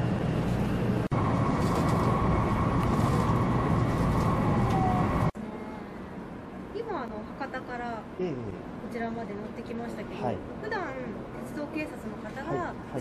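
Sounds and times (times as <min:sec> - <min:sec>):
train low rumble: 0:00.0 - 0:10.0.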